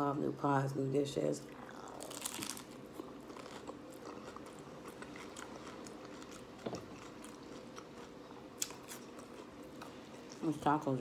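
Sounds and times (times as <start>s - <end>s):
person chewing crunchy food: 1.5s - 10.5s.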